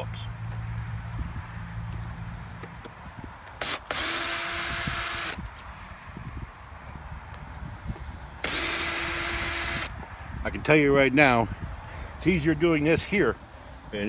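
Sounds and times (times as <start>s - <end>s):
cordless drill backing out screws: 3.5s - 5.4s, 8.4s - 9.9s.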